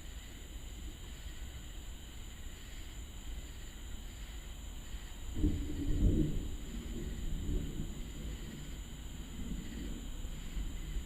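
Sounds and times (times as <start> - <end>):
high-pitched insect drone: 0.0 - 11.0
low storm rumble: 5.2 - 11.0.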